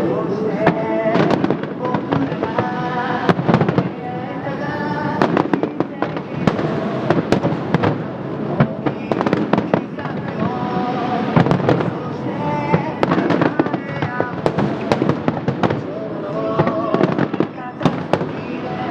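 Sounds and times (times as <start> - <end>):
fireworks bangs and crackles: 0.0 - 18.9.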